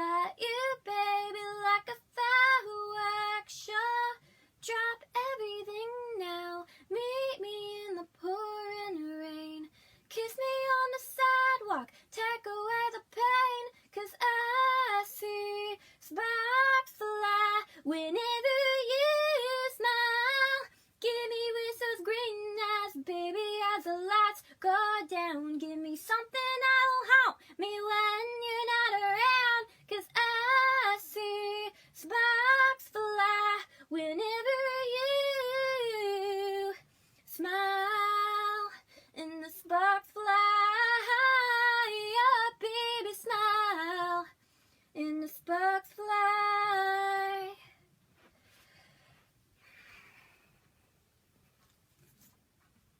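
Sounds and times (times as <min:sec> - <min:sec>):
woman singing a cappella: 0:00.0 - 0:47.8
faint soft rustles: 0:46.8 - 0:52.9.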